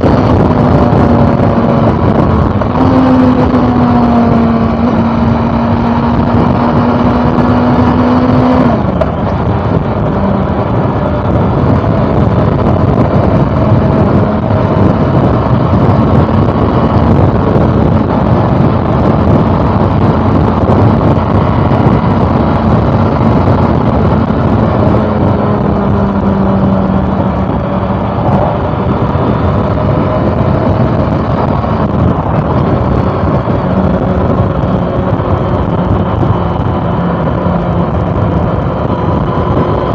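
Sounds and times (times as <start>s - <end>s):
motorcycle engine cruising: 0.0s - 39.9s
road noise: 0.0s - 39.9s
wind rush: 0.0s - 39.9s.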